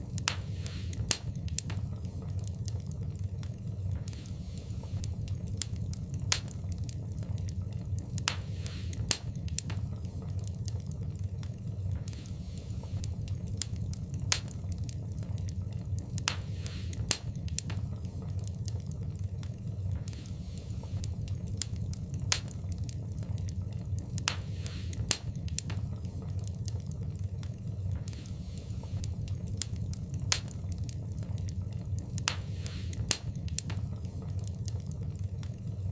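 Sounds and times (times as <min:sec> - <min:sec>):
wood fire crackling in a fireplace: 0:00.0 - 0:35.9.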